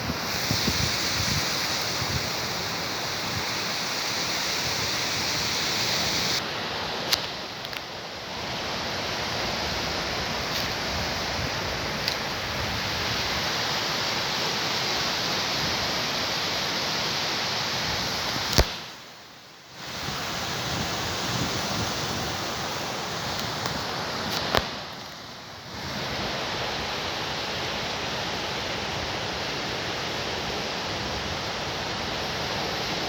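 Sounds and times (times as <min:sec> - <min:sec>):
sea surf rushing: 0:00.0 - 0:19.0, 0:19.7 - 0:33.0
brief click: 0:18.5 - 0:18.8.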